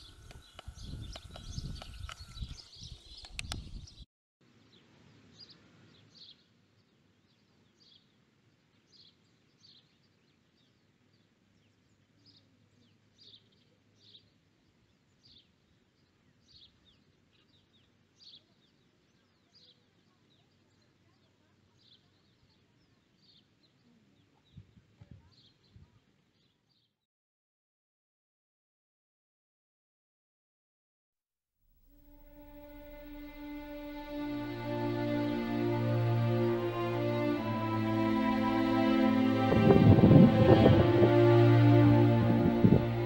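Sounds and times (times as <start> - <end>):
background hiss: 31.7 - 43.0.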